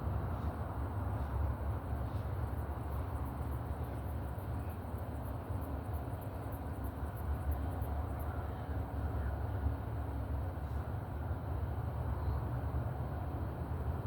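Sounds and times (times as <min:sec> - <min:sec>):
crickets chirping: 0:01.2 - 0:09.3.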